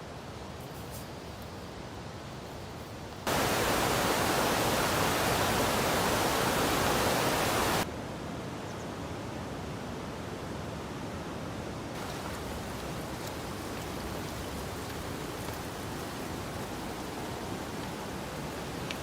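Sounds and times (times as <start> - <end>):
rain hissing: 3.2 - 7.9, 12.0 - 19.0
loud rush of rain: 3.3 - 7.9, 12.0 - 19.0.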